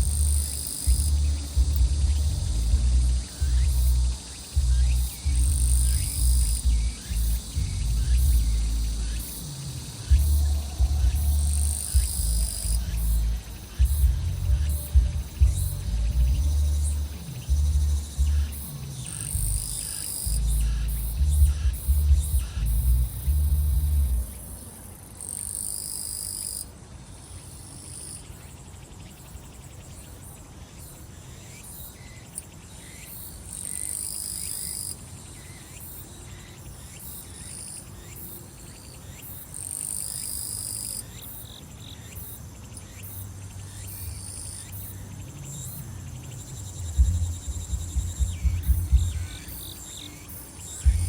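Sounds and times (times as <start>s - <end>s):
thumping bass beat: 0.0s - 18.7s, 19.3s - 24.3s, 46.6s - 49.6s, 50.8s - 51.0s
insects and cicadas trilling: 0.0s - 51.0s
high insect buzzing phrase: 43.7s - 51.0s.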